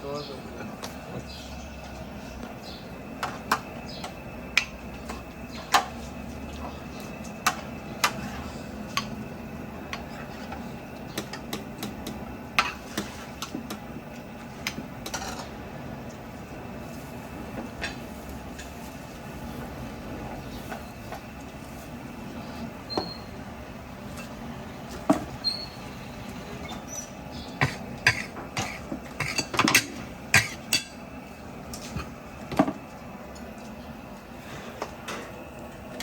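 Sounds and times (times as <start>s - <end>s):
steady low hum: 0.0s - 36.0s
metal utensils and dishes clinking: 27.6s - 31.0s.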